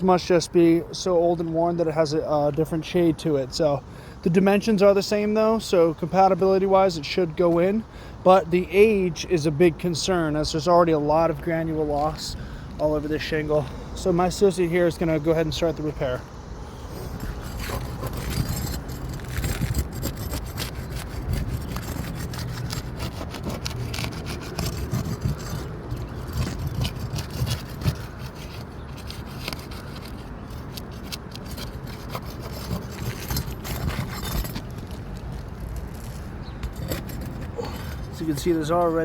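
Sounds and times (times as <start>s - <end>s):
tool scraping roof shingles: 16.7s - 39.0s.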